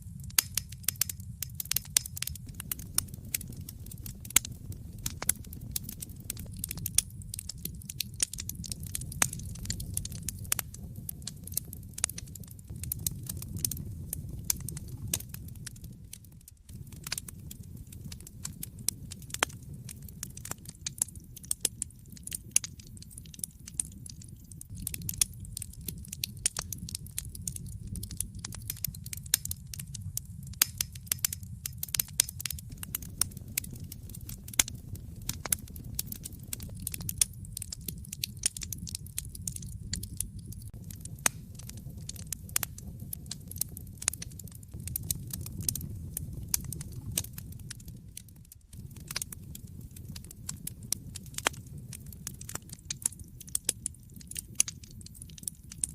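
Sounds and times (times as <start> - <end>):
fire crackling and popping: 0.0 - 55.9
low rumble of burning: 0.0 - 55.9.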